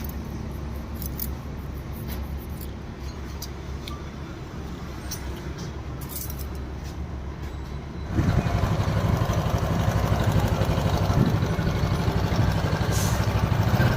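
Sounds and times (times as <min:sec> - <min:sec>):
scooter engine idling: 0:08.1 - 0:13.9.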